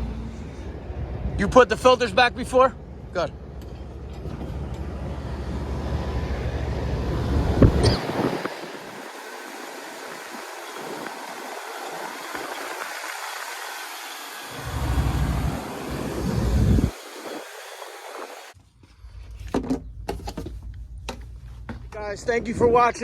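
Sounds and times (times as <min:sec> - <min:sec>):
low machine hum: 0:00.0 - 0:19.3
rush of air: 0:05.8 - 0:18.6.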